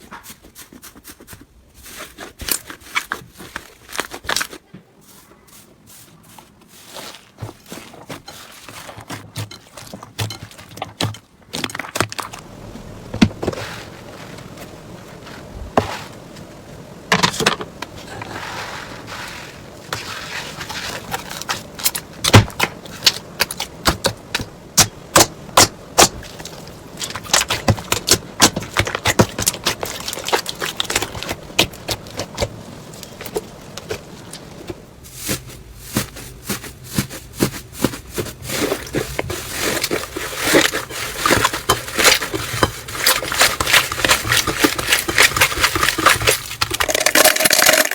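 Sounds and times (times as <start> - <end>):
slime crackling and popping: 20.9 - 34.0, 35.2 - 47.9.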